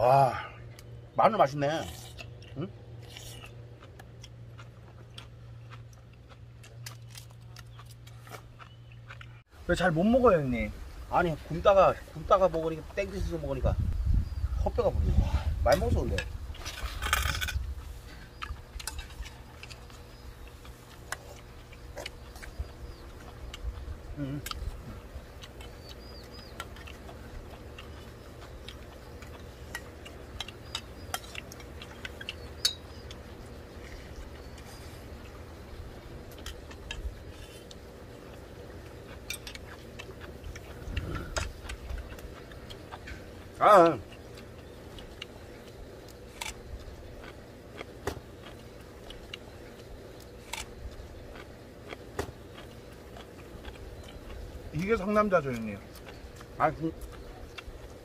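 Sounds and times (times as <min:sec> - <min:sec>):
steady low rumble: 0:00.0 - 0:58.0
crunching on green onion: 0:01.7 - 0:09.4, 0:15.8 - 0:58.0
small ticks: 0:18.4 - 0:35.4.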